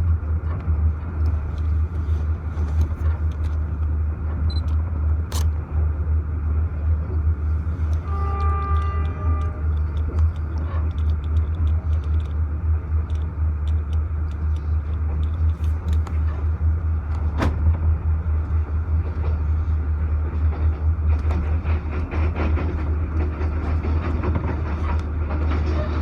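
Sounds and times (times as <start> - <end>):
train rumbling: 0.0 - 26.0
train wheels clicking over track: 7.8 - 17.9, 18.7 - 26.0.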